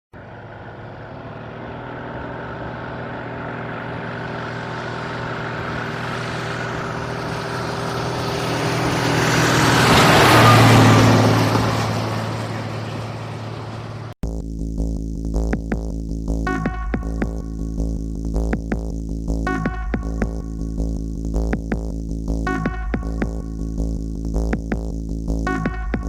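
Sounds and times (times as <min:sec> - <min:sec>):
truck driving past: 0:00.1 - 0:14.2.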